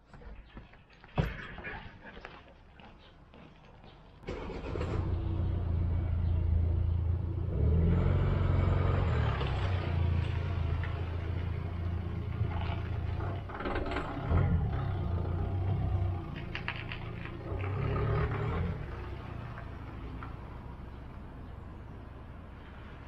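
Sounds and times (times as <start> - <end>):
car engine starting and running: 4.2 - 22.4.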